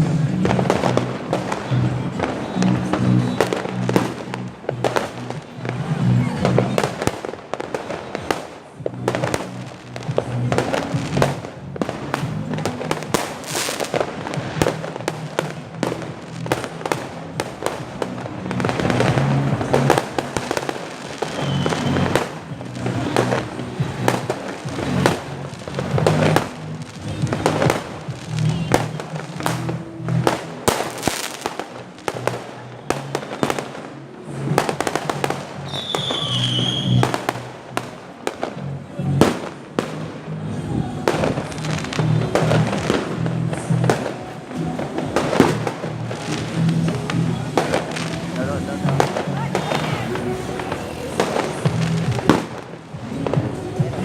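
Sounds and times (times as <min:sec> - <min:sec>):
firecrackers banging and crackling: 0:00.0 - 0:54.0
firework whistle: 0:21.1 - 0:22.4, 0:32.2 - 0:33.8, 0:35.6 - 0:37.4.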